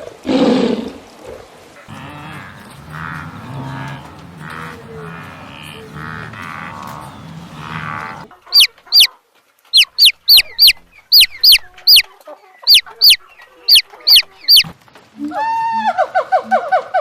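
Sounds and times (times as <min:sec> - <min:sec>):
small bird chirping: 0:01.9 - 0:09.1, 0:09.7 - 0:14.7.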